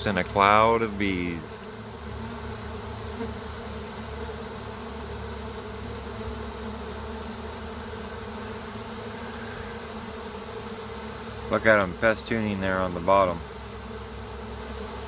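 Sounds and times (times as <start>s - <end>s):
bee swarm buzzing: 0.0s - 15.0s.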